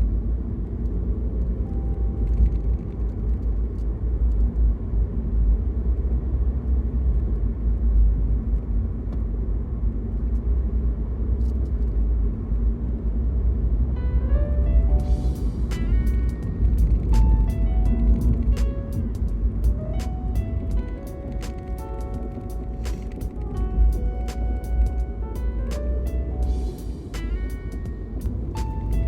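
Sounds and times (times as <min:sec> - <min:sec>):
car driving rumble: 0:00.0 - 0:29.0.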